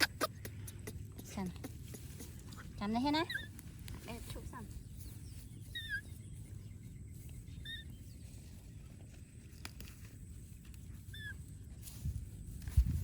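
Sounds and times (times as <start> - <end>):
small animal high chirps: 5.0 - 6.2, 7.6 - 8.0, 11.1 - 11.4.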